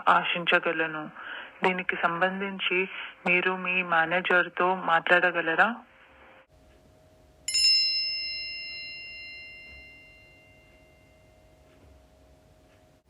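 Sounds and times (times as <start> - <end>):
bell-like chime ringing: 7.5 - 11.6.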